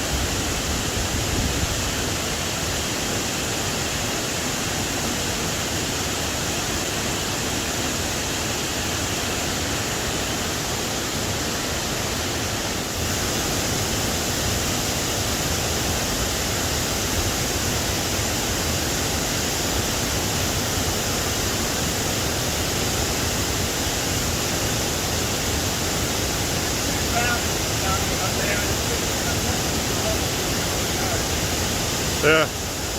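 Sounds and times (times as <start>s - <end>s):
creek water rushing over rocks: 0.0s - 32.9s.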